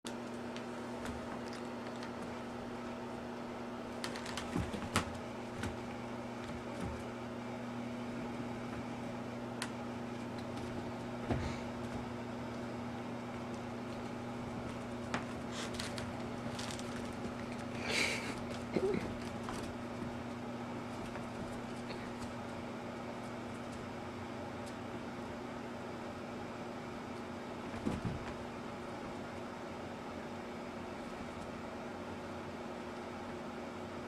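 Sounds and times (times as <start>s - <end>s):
low room hum: 0.1s - 34.0s.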